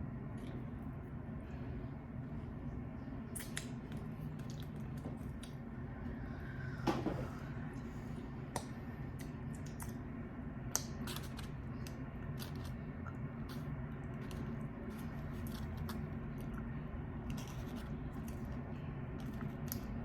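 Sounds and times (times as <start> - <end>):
low hum: 0.0 - 20.0
chewing chicken wings: 8.6 - 20.0.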